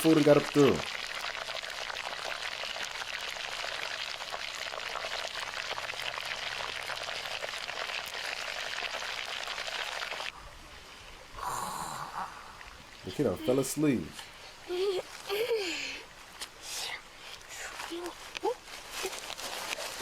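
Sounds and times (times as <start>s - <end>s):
fish sizzling over fire: 0.0s - 10.3s.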